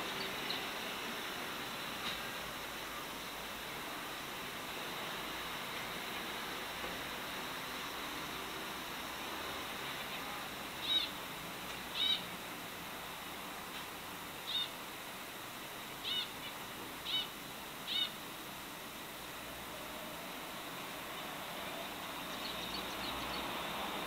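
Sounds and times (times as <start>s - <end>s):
background hiss: 0.0s - 24.0s
bird chirping: 22.2s - 23.6s.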